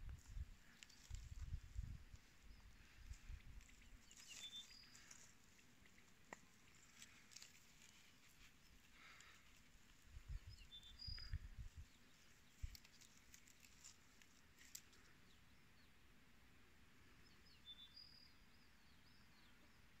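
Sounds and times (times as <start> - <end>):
small bird chirping: 0.2 - 15.6.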